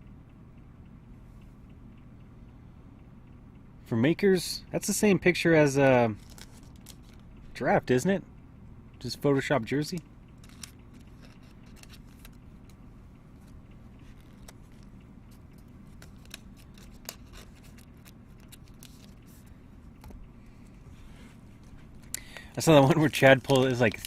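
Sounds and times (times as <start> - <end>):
steady low hum: 0.0 - 24.0
cards clicking and scraping: 6.2 - 7.2, 10.4 - 12.8, 13.4 - 20.2, 21.6 - 24.0.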